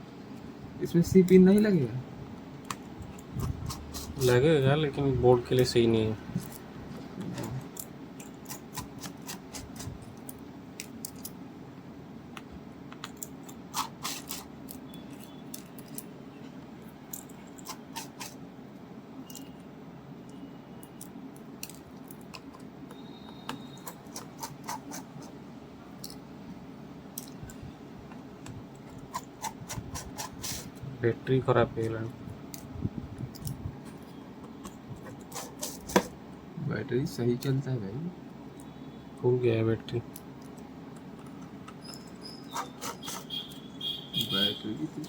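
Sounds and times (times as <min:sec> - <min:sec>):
steady low hum: 0:00.0 - 0:45.0
small tools clicking and scraping: 0:17.1 - 0:18.4, 0:19.2 - 0:19.6, 0:26.0 - 0:26.2, 0:40.1 - 0:43.6.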